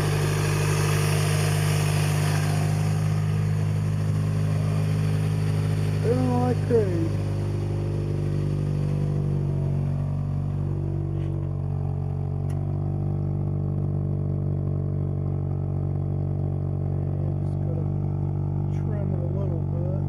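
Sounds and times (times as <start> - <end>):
car engine idling: 0.0 - 20.0
faint engine ticks: 11.1 - 12.8.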